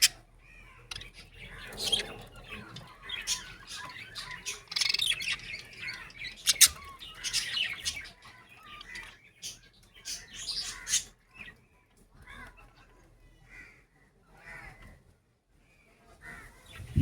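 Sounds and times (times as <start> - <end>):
sharp loud bird calls: 0.0 - 11.2
budgerigars chattering and chirping: 0.0 - 11.6.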